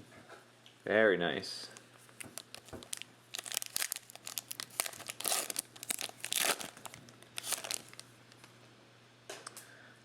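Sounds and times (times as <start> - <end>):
wrappers crinkling and tearing: 1.8 - 8.5.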